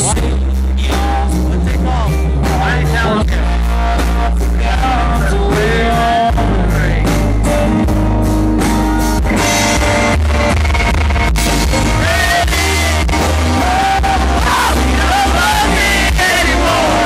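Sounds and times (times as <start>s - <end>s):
man singing: 0.0s - 7.9s, 11.6s - 17.0s
country band playing: 0.0s - 17.0s.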